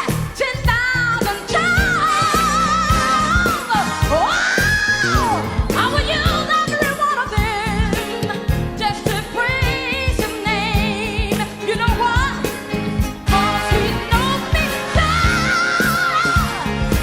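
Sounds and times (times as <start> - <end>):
pop soul song: 0.0 - 17.0.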